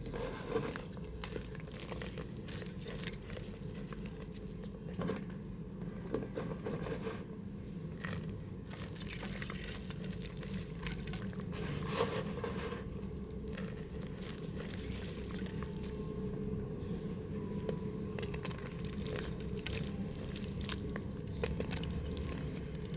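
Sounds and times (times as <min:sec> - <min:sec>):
mud crumbling in a pot: 0:00.0 - 0:05.6, 0:07.8 - 0:22.9
steady low hum: 0:07.2 - 0:22.9.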